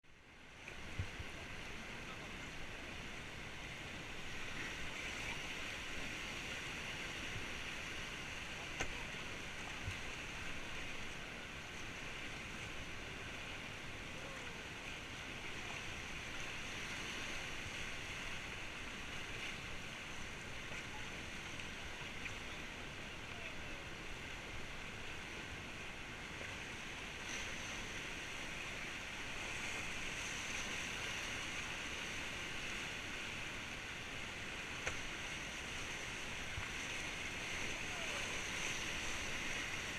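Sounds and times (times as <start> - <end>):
river water rushing through rapids: 0.1 - 39.9.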